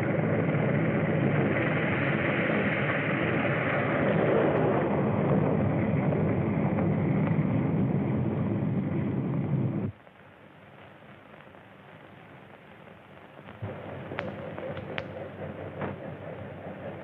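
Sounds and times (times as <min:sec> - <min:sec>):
faint film hiss: 0:08.7 - 0:17.0.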